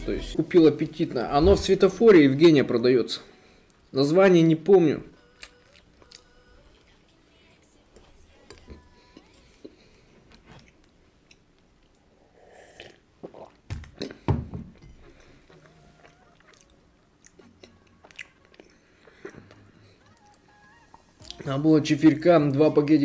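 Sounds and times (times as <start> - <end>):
chewing a crumbly cookie: 14.9 - 20.4.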